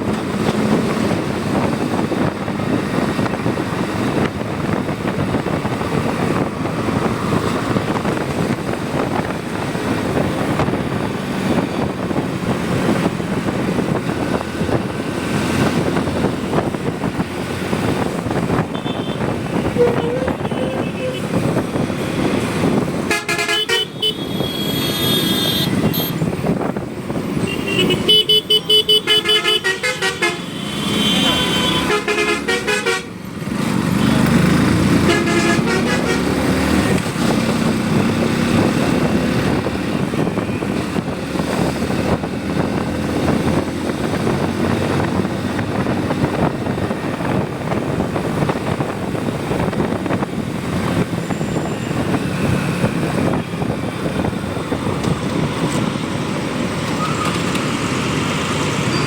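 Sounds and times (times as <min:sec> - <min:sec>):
wind rushing: 0:00.0 - 0:23.2, 0:33.4 - 0:58.9
traffic: 0:00.0 - 0:59.0
vehicle horns honking: 0:18.6 - 0:21.4, 0:23.0 - 0:26.2, 0:27.4 - 0:33.2, 0:35.0 - 0:36.5.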